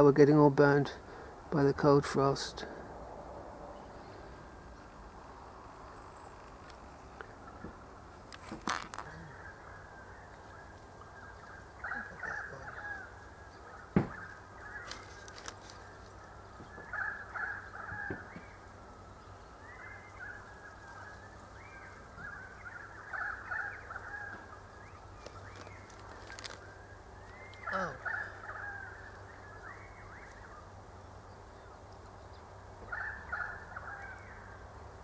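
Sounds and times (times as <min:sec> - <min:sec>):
birds calling harshly: 0:03.8 - 0:34.7.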